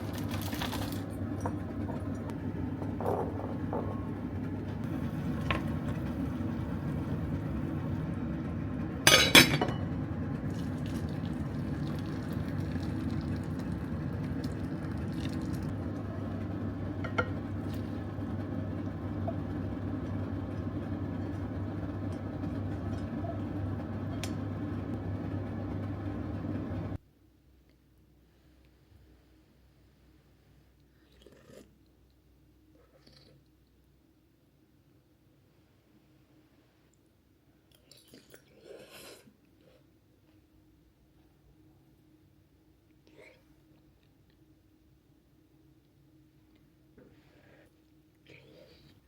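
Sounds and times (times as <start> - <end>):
motor humming: 0.9 - 9.1
dishes clinking: 1.4 - 4.2, 9.1 - 9.9, 17.0 - 17.4.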